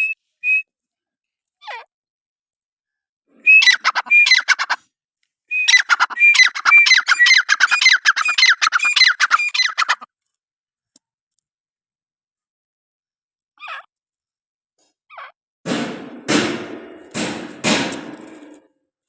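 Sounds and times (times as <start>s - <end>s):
francolin calling: 3.4s - 4.8s, 5.5s - 10.0s.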